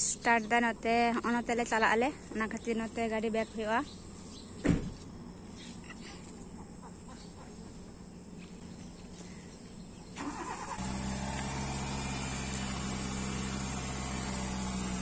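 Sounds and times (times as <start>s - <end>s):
car engine cranking: 10.2s - 15.0s
car engine idling: 10.2s - 15.0s.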